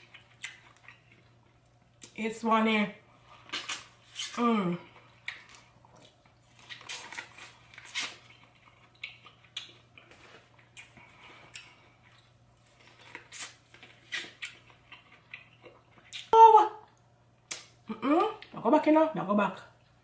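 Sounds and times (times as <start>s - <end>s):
person eating with mouth smacks: 3.4s - 4.4s.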